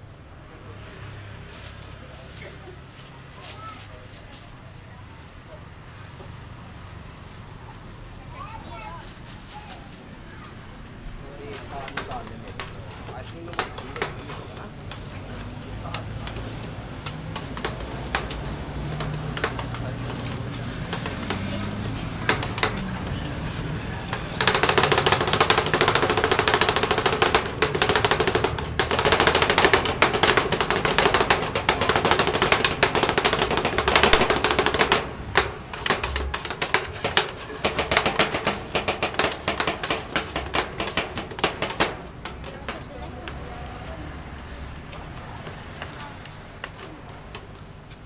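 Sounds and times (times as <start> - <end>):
rapid rattling clatter: 11.1 - 43.4
sharp clicks and taps: 11.4 - 47.7.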